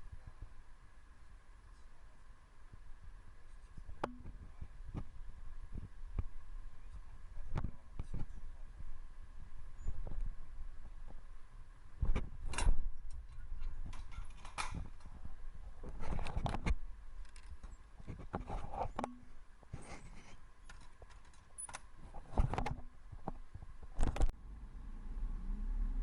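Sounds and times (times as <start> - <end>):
objects being moved about: 12.0 - 24.3.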